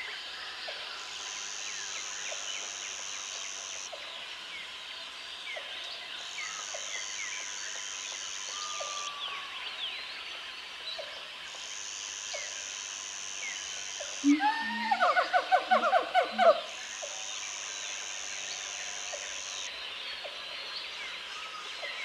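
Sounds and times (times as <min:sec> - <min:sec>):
low animal call: 0:14.2 - 0:16.7.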